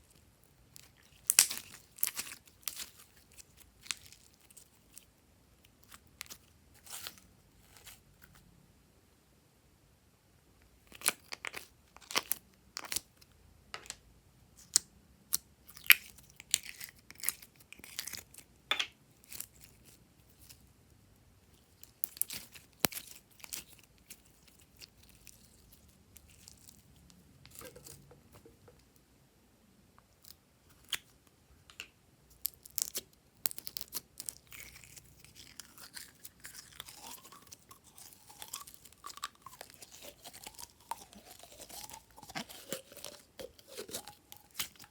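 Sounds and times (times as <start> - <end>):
slime clicking and crackling: 0.8 - 5.1, 21.8 - 26.8, 32.4 - 44.9.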